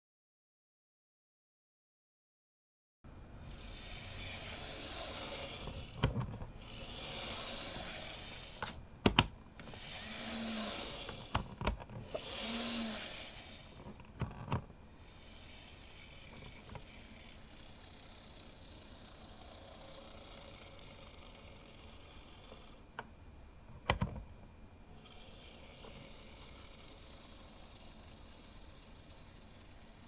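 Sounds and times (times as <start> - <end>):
plastic case clicks: 9.0 - 9.4.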